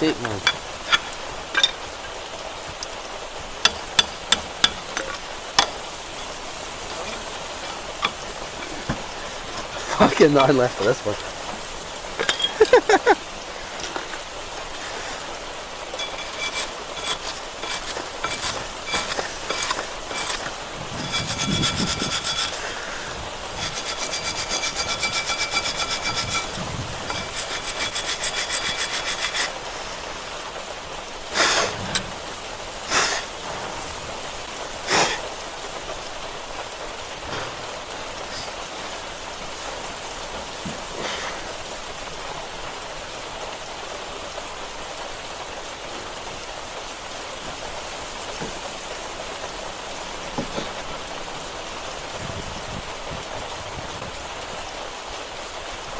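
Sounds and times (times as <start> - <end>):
fast metallic rattle: 0.0 - 2.2, 15.9 - 22.8, 23.4 - 29.6
steady hiss: 0.0 - 55.9.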